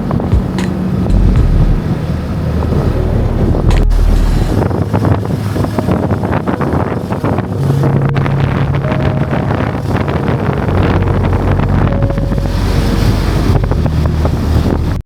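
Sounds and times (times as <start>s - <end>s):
heavy low rumble: 0.0s - 15.0s
wind buffeting microphone: 0.0s - 15.0s
motorcycle engine running: 0.4s - 1.9s.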